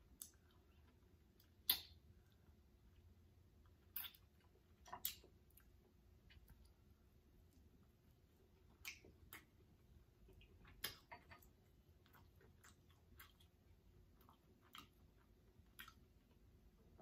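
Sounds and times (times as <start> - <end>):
mouth clicks and smacks chewing: 0.0 - 2.5, 3.6 - 6.8, 8.5 - 16.4.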